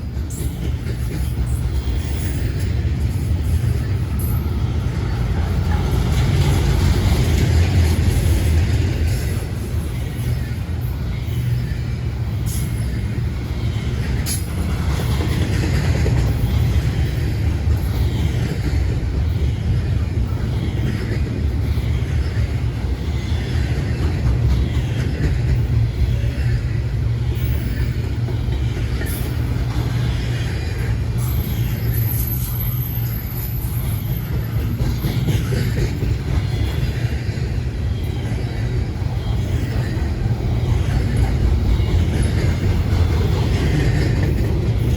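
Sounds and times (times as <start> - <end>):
freight train rumbling: 0.0 - 44.9
high wheel squeal: 29.0 - 35.6.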